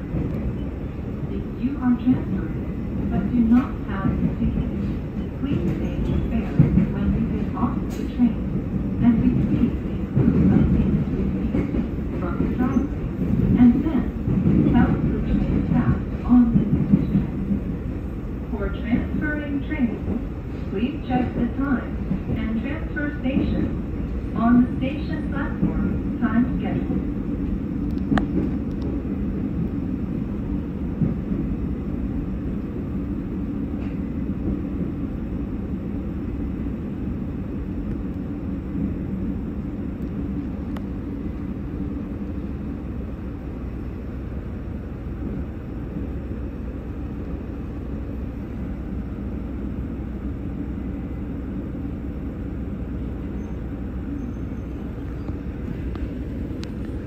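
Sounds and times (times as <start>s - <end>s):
train rumbling: 0.0s - 57.0s
faint clicks: 27.9s - 28.9s.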